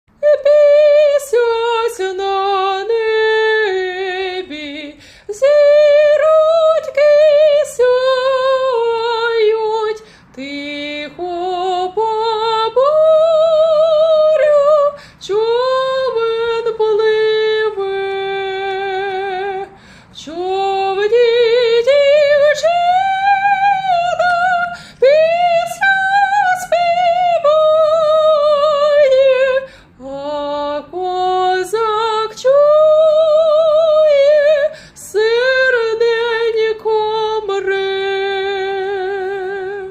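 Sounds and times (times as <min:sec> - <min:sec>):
woman singing with vibrato: 0:00.1 - 0:39.9.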